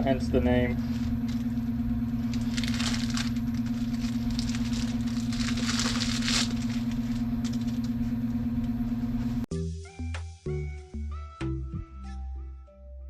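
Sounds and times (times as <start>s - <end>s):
low machine hum: 0.0s - 9.5s.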